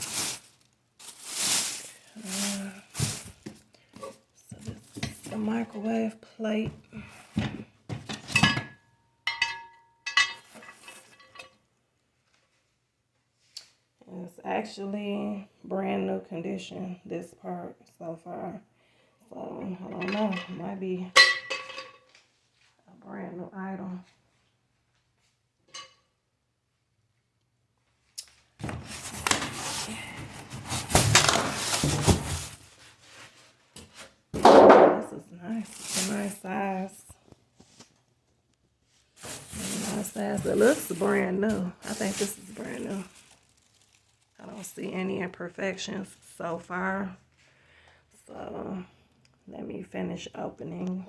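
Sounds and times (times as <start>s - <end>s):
cardboard rustling: 0.0s - 3.7s, 28.6s - 34.1s, 35.6s - 36.4s, 39.0s - 44.4s.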